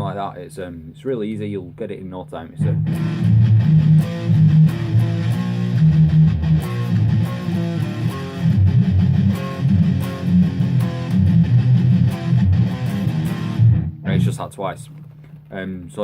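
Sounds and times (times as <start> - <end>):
electric guitar power chord riff: 2.6 - 14.4.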